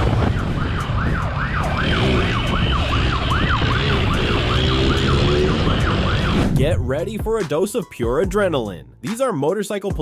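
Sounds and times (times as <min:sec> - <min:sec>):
police siren yelping: 0:00.0 - 0:06.6.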